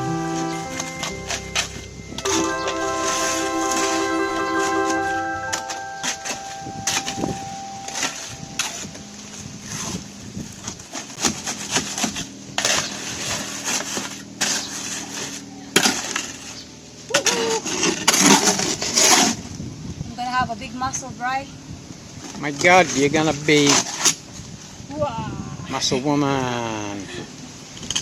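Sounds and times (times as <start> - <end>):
background music: 0.0 - 9.7
low steady hum: 0.0 - 16.4.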